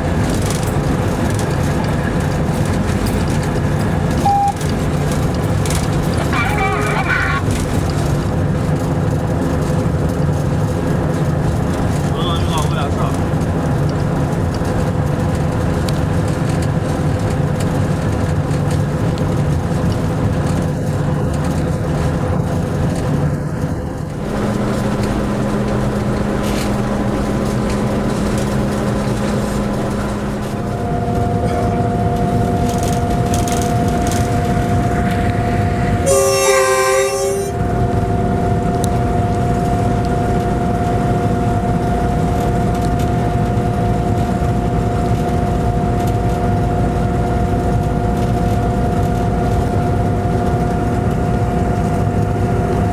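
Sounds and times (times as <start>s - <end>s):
locomotive engine drone: 0.0s - 52.9s
train horn blast: 30.2s - 38.2s.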